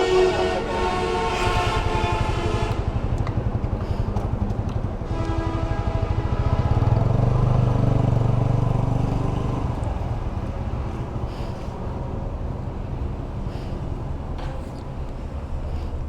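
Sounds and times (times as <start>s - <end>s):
vehicle engine passing by: 6.3s - 11.1s.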